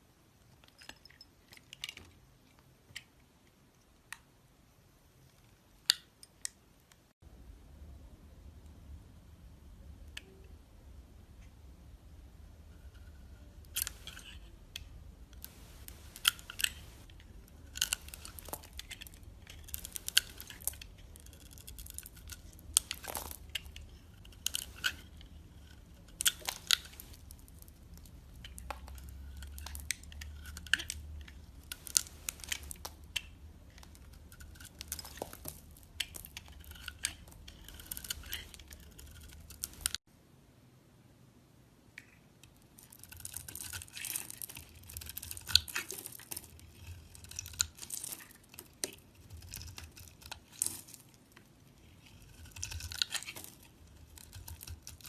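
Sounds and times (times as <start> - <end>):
steady low hum: 7.2 - 30.5
knife cutting soap: 12.7 - 40.0, 51.8 - 55.0.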